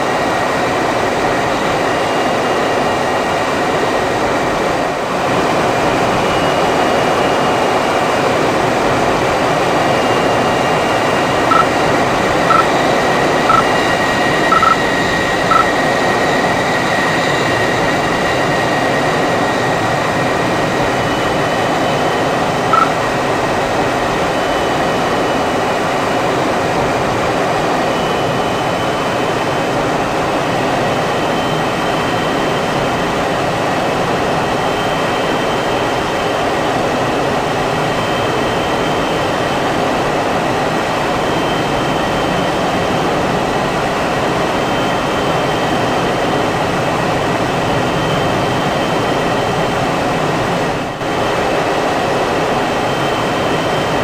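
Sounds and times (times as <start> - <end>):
jet engine running: 5.3 - 25.6
short high beeps: 11.5 - 11.8, 12.5 - 12.8, 13.5 - 13.9, 14.5 - 14.9, 22.7 - 23.0.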